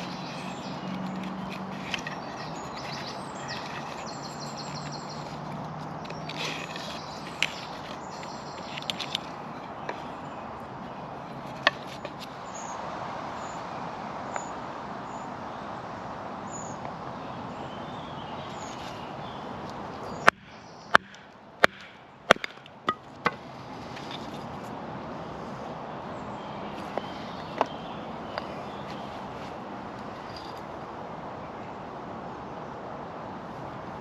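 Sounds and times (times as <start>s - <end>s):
steady outdoor hiss: 0.0s - 34.0s
knife chopping into wood: 20.2s - 23.4s.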